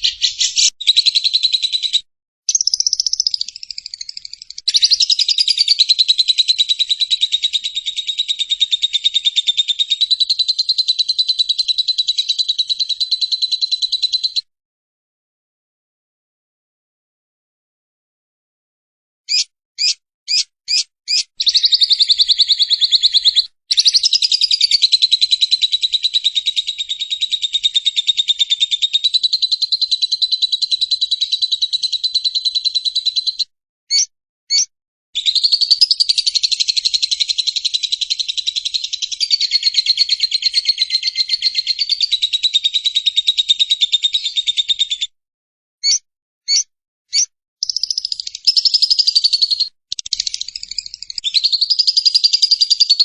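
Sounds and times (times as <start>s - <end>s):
bird chatter: 0.0s - 14.4s, 19.3s - 34.6s, 35.2s - 45.0s, 45.8s - 53.0s
single bird chirps: 0.0s - 14.5s, 19.3s - 45.1s, 45.8s - 53.0s.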